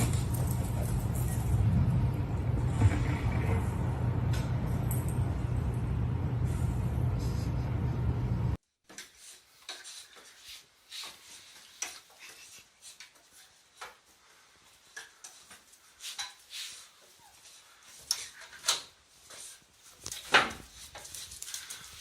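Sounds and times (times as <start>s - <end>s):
steady low rumble: 0.0s - 8.6s.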